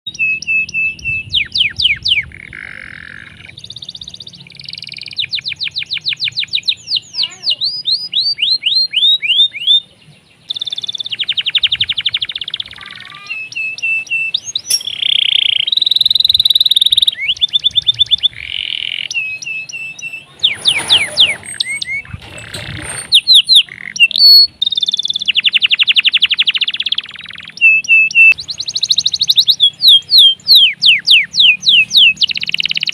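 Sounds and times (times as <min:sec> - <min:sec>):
canary singing: 0:00.1 - 0:32.9.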